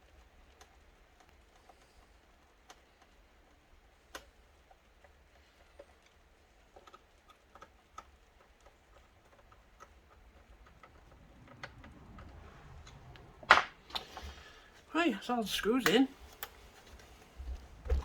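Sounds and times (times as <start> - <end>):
handling rustle: 6.6 - 18.0.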